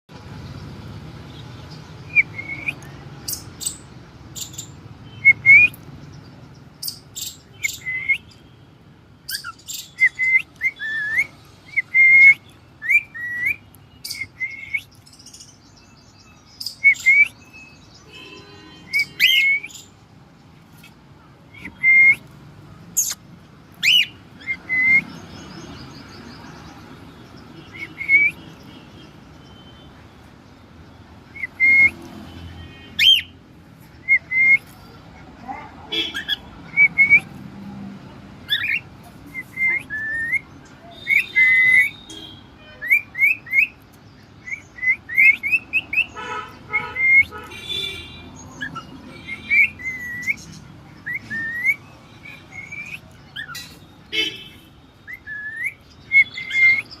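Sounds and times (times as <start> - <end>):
cockatiel chirping: 36.0 - 36.4, 38.5 - 38.8, 41.0 - 42.0.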